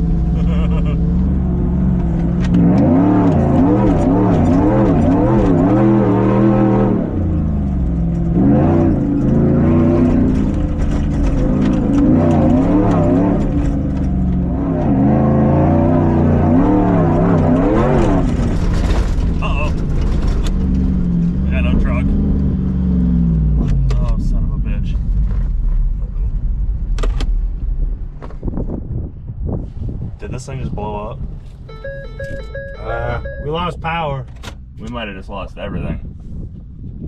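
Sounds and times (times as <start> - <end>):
truck engine revving hard: 2.6 - 7.5, 8.2 - 10.8, 14.4 - 23.4.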